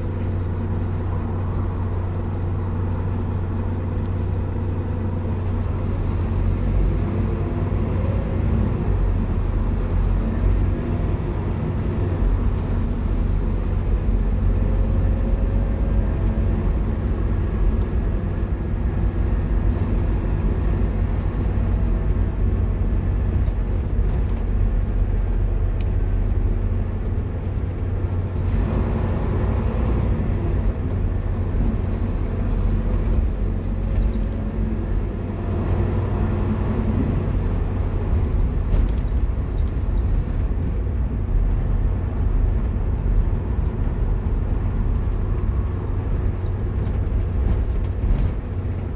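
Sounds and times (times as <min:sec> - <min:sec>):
bus engine running: 0:00.0 - 0:48.9
road and body noise: 0:00.0 - 0:48.9.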